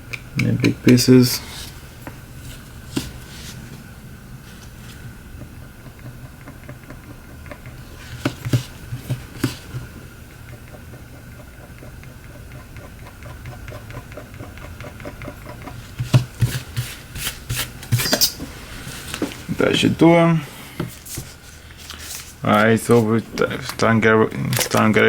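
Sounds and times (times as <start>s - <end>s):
tool scraping glass screen: 16.4s - 18.5s.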